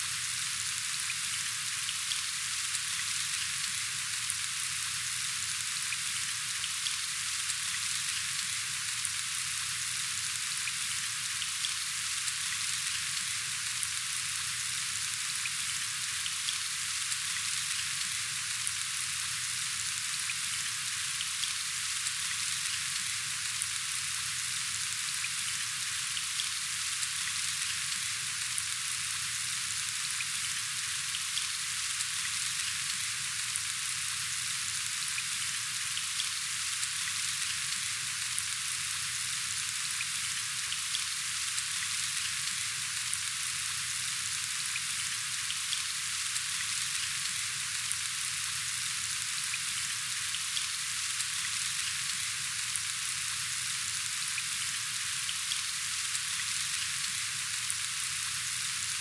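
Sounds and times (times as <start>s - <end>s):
steady rain hissing: 0.0s - 59.0s.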